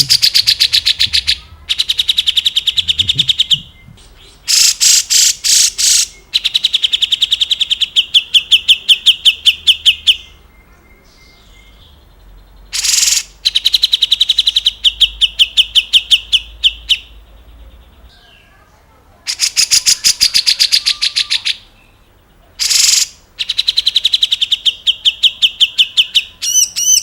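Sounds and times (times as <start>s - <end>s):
bird harsh scratchy notes: 0.0s - 2.0s
bird fast high trill: 0.0s - 3.6s.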